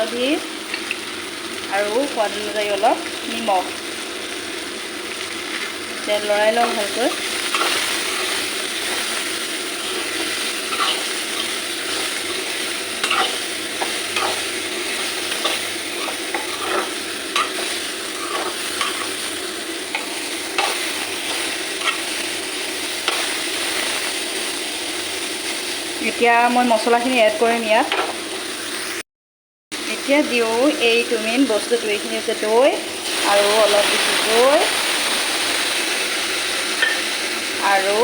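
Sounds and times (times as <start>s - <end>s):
vegetables sizzling in oil: 0.0s - 29.0s, 29.8s - 38.0s
spatula scraping a pan: 6.6s - 22.3s.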